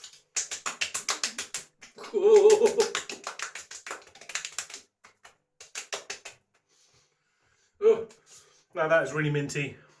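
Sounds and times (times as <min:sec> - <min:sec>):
hands patting face: 0:00.0 - 0:06.8
wavering vocal ooh: 0:02.0 - 0:03.1.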